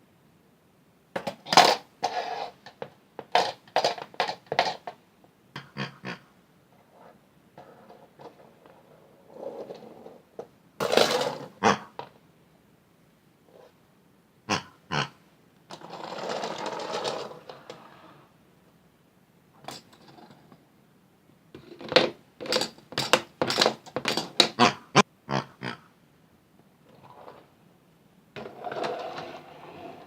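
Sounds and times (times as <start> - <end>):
toy washing machine whirring: 15.7 - 18.2.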